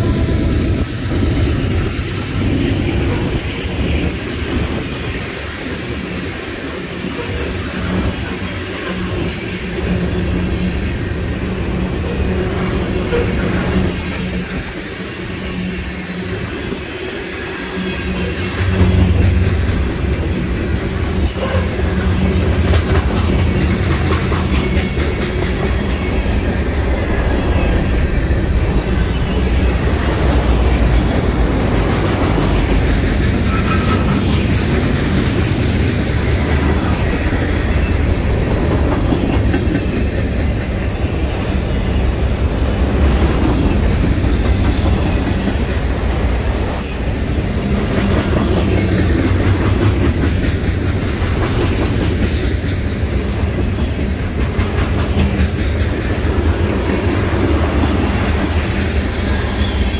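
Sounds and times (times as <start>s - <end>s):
train wheels rumbling on rails: 0.0s - 59.9s
wheels clicking over rail joints: 18.2s - 26.1s.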